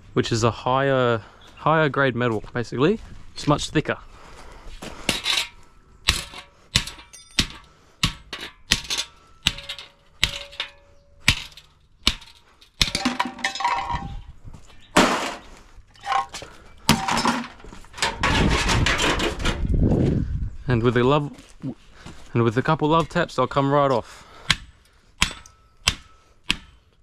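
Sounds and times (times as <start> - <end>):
metal clanking on steel plates: 5.1 - 14.2, 14.8 - 19.6
clattering and knocking: 6.1 - 14.2, 16.0 - 19.6.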